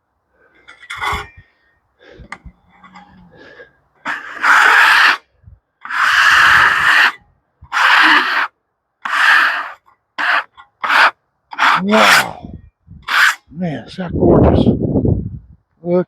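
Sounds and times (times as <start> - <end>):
scraper scraping wood: 2.3 - 12.4, 13.1 - 13.5.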